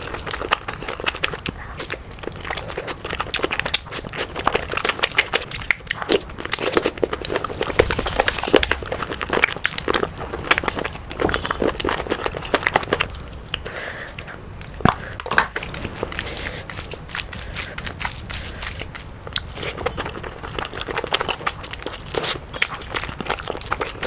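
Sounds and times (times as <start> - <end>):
crunchy bites: 0.0 - 24.0
person chewing food: 0.0 - 24.0.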